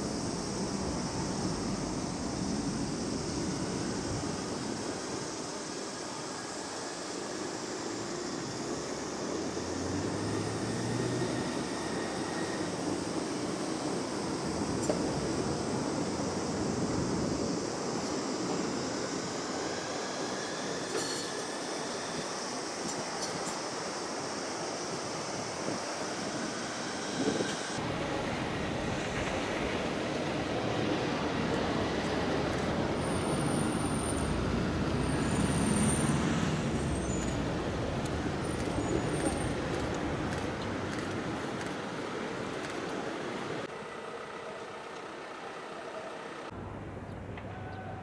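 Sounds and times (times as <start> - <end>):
tram rumbling on rails: 0.0 - 48.0
high wheel squeal: 5.9 - 16.1, 32.9 - 39.8.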